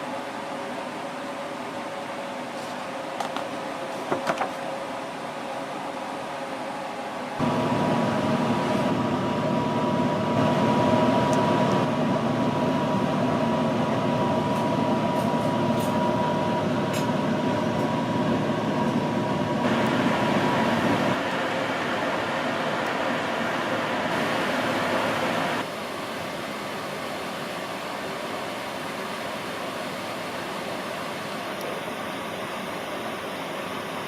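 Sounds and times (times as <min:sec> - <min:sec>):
mechanical rumble and hum: 0:07.3 - 0:25.7.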